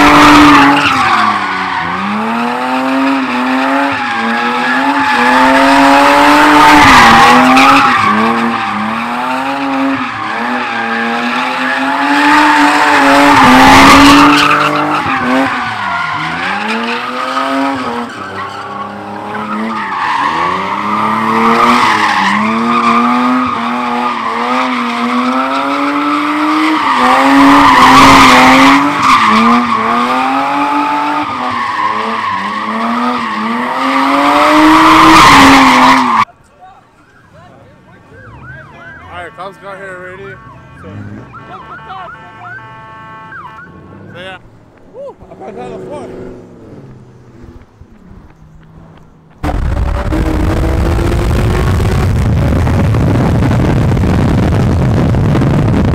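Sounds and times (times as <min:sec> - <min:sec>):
car engine at high revs: 0:00.0 - 0:36.3, 0:45.2 - 0:55.9
tyres screeching: 0:00.0 - 0:37.2.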